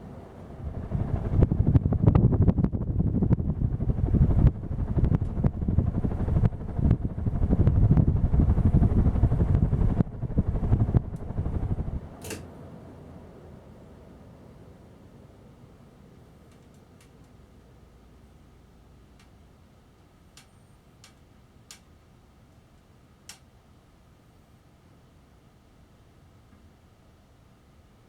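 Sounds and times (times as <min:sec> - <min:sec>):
ceiling fan rumbling: 0:00.0 - 0:28.0
fan blades clicking and clattering: 0:00.6 - 0:12.5, 0:20.0 - 0:22.1.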